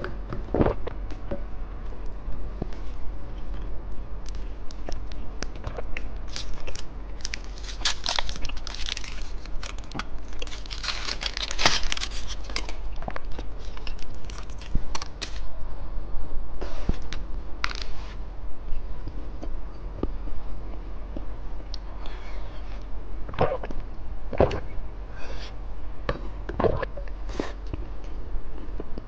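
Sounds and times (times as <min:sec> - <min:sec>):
plastic wrapper crinkling: 0:04.2 - 0:15.5, 0:17.0 - 0:18.0
wrapper tearing: 0:06.3 - 0:15.5, 0:17.1 - 0:18.0.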